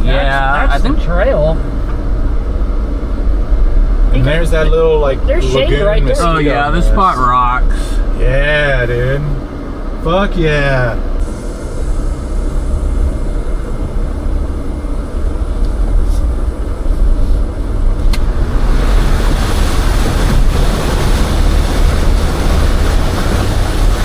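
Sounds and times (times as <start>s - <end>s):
off-road vehicle engine rumble: 0.0s - 24.0s
tyre and wind noise: 11.2s - 24.0s.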